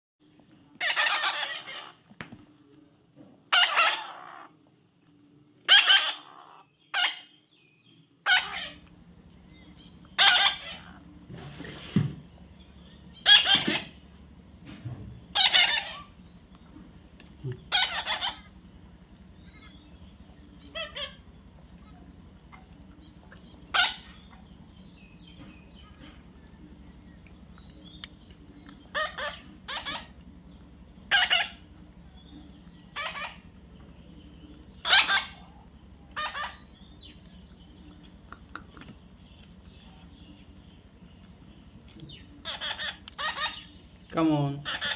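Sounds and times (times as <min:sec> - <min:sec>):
low steady hum: 0:00.2 - 0:44.9
parrot squawking: 0:00.8 - 0:02.0, 0:03.5 - 0:04.5, 0:05.7 - 0:07.4, 0:08.2 - 0:08.8, 0:10.1 - 0:11.0, 0:13.2 - 0:14.0, 0:15.3 - 0:16.1, 0:17.7 - 0:18.5, 0:20.6 - 0:22.7, 0:23.7 - 0:24.4, 0:28.8 - 0:30.2, 0:31.1 - 0:31.7, 0:32.9 - 0:33.5, 0:34.8 - 0:36.8, 0:42.4 - 0:43.8, 0:44.6 - 0:44.9.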